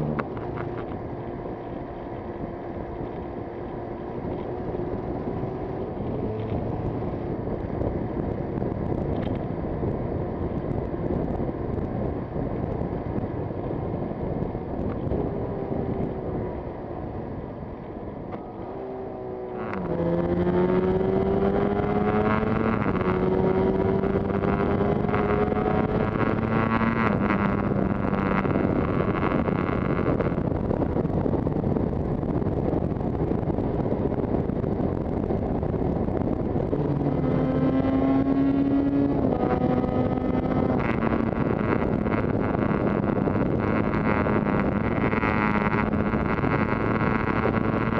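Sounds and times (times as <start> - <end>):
motorcycle engine accelerating: 0.0 - 47.9
wind noise: 0.0 - 47.9.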